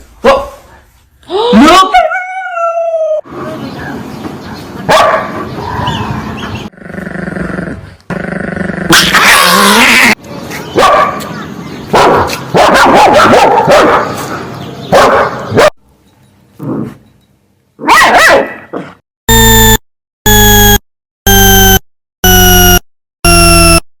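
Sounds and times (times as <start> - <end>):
dogs barking and whining: 1.6 - 3.2, 11.9 - 15.8
buzzer-like beeps: 19.3 - 23.9.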